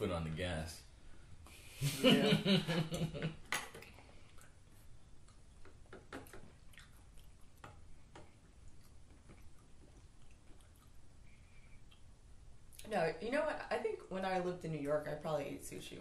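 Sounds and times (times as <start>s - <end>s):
soft chewing: 3.6s - 12.9s
mouth clicks and taps: 5.2s - 11.0s.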